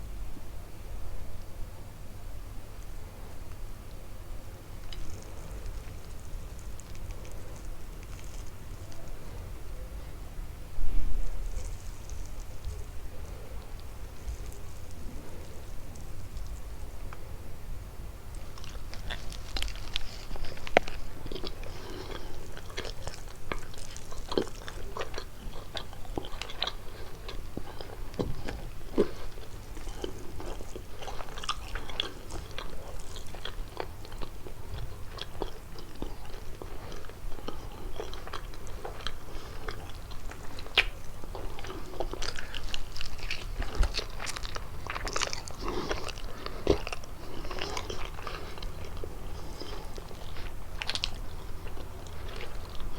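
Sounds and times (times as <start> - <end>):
person biting and chewing pastry: 4.8 - 9.2, 18.4 - 52.9.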